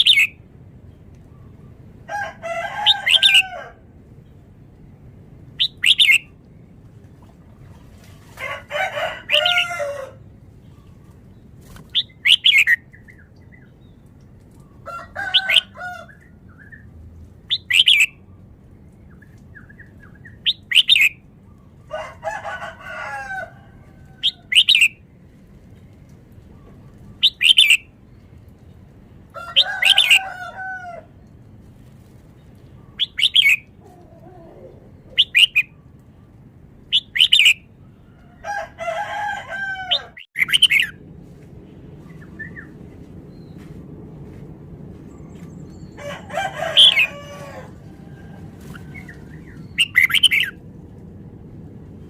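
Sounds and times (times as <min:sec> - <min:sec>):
bird singing bright phrases: 0:00.0 - 0:00.4, 0:05.6 - 0:06.3, 0:10.6 - 0:14.7, 0:17.5 - 0:18.2, 0:26.6 - 0:28.7, 0:32.6 - 0:33.8, 0:34.9 - 0:37.7, 0:40.4 - 0:41.0, 0:48.8 - 0:50.6
rooster crowing: 0:02.0 - 0:03.8, 0:08.4 - 0:10.2, 0:14.8 - 0:16.2, 0:21.9 - 0:24.6, 0:29.3 - 0:31.2, 0:38.2 - 0:40.3, 0:45.9 - 0:49.2.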